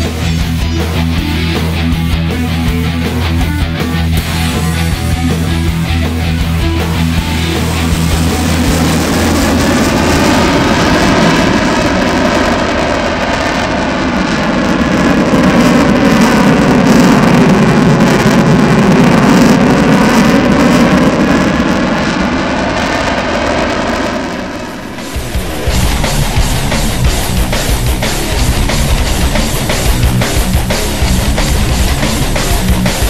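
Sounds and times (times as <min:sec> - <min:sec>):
guitar music: 0:00.0 - 0:10.5, 0:24.6 - 0:33.0
jet aircraft flying past: 0:00.0 - 0:33.0.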